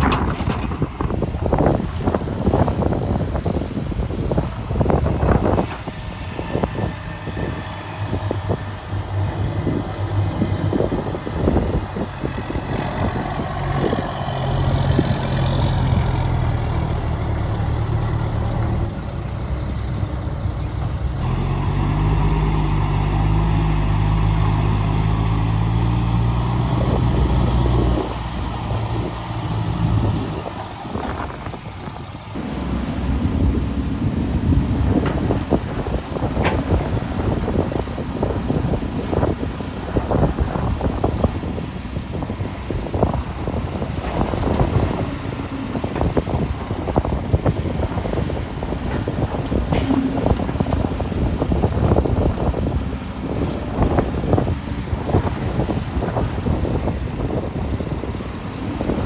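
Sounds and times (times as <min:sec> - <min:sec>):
knocks and clatter: 0:00.0 - 0:01.4
excavator diesel engine revving: 0:04.1 - 0:59.0.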